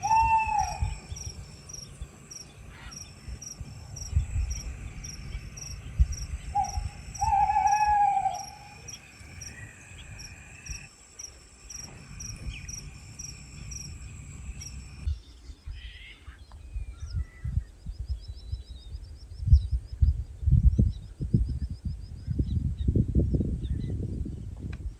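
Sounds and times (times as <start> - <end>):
falling bird call: 0.0 - 3.4, 6.4 - 10.8
insects chirping: 0.0 - 15.2
low wind rumble: 0.0 - 15.8, 16.4 - 24.9.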